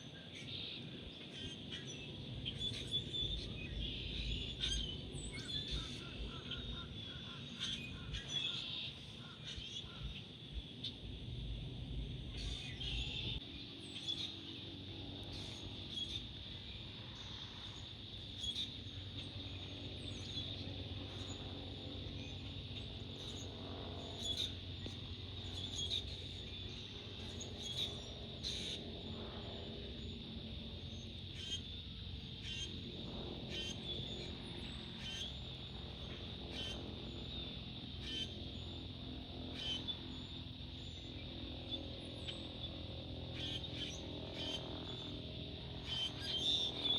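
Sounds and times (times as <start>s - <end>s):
small birds chirping: 0.3s - 46.9s
low drone: 0.9s - 46.9s.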